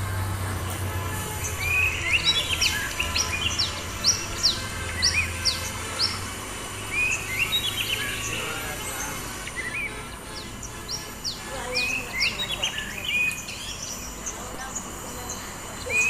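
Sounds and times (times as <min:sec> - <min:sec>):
bird singing whistles and chirps: 0:01.1 - 0:16.0.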